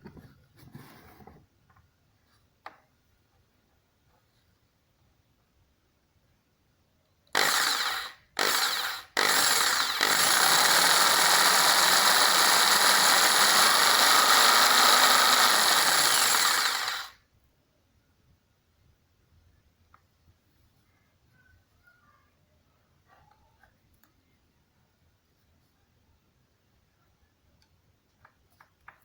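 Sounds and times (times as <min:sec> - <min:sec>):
jigsaw motor running: 0:07.4 - 0:17.2.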